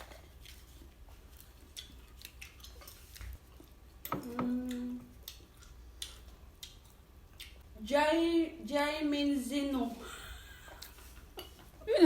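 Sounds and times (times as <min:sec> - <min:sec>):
person humming: 0:04.2 - 0:05.2.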